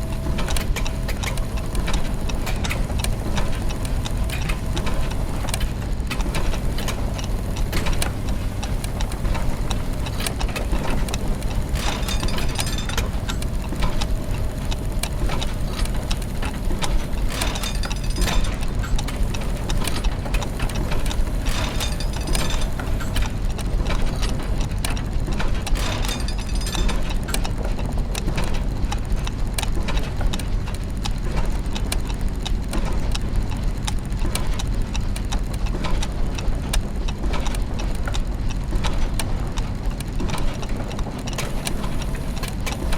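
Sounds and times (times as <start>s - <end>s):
gears ticking and clicking: 0.0s - 42.9s
low mechanical hum: 0.0s - 42.9s
bright clattering: 10.9s - 16.2s, 16.9s - 23.3s, 25.8s - 27.2s.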